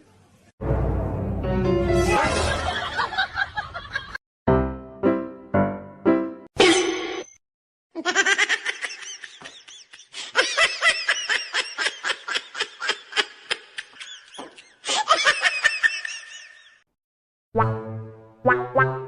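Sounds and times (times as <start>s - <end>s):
high-pitched laughter: 8.0s - 16.8s.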